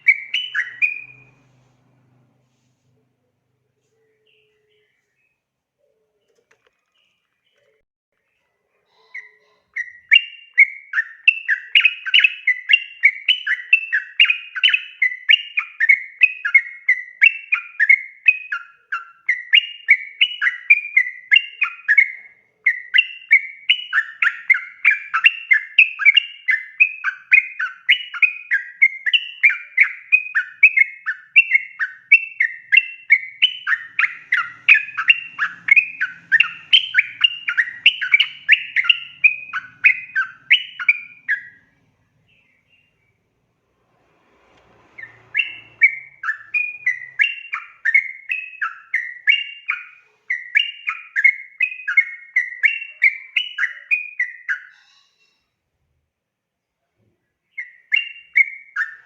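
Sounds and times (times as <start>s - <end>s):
bird singing bubbly chatter: 0.0s - 1.4s, 9.2s - 41.7s, 45.0s - 54.8s.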